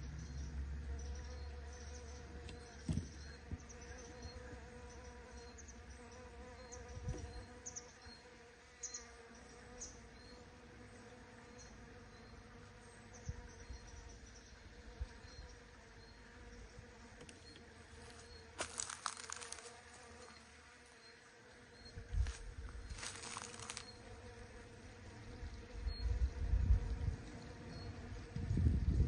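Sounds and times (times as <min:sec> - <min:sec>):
bees buzzing: 0:00.0 - 0:29.0
dull thumps on microphone: 0:02.8 - 0:03.6.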